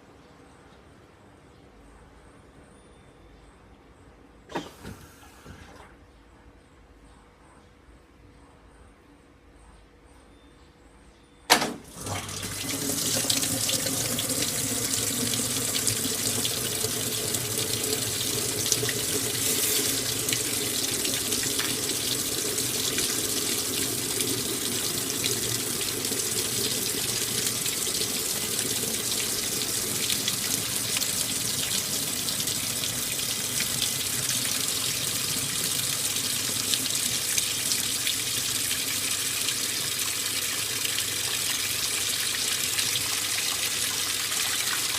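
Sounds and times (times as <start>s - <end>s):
water pouring into washing machine: 11.5s - 44.9s.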